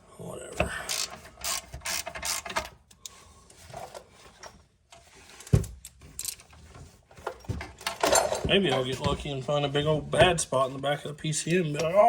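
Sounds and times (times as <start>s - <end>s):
tool handling: 0.6s - 10.4s
ratchet wrench clicking: 0.9s - 2.7s.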